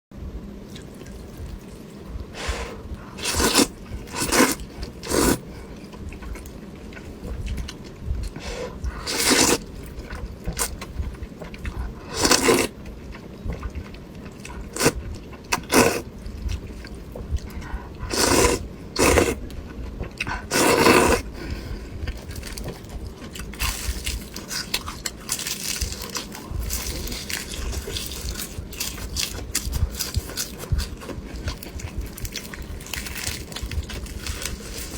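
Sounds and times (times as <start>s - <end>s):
wet chewing: 0.7s - 34.9s
slurping noodles and broth: 2.4s - 5.6s, 8.4s - 9.6s, 12.1s - 12.8s, 14.6s - 16.1s, 18.0s - 19.4s, 20.4s - 21.6s.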